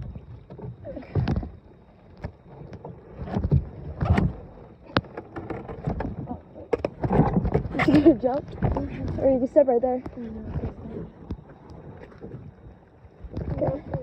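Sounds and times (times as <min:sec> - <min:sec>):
boat hull knocking: 0:03.3 - 0:11.5.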